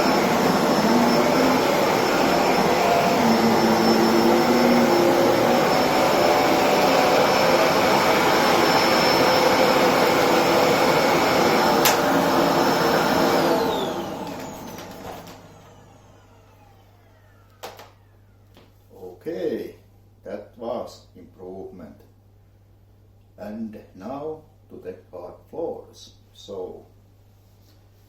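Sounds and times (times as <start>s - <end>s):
vacuum cleaner running: 0.0s - 18.4s.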